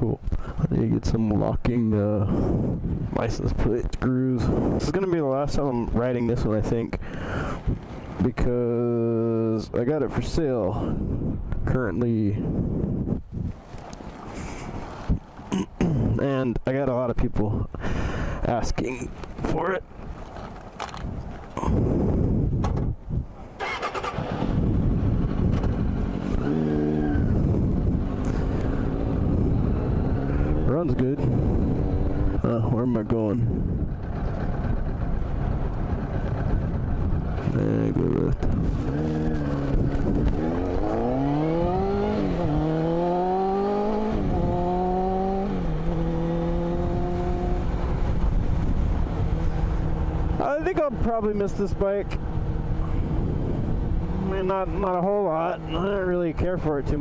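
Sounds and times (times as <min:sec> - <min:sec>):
wind noise on microphone: 0:00.0 - 0:16.6, 0:17.2 - 0:57.0
motorcycle engine running loud: 0:23.6 - 0:56.1.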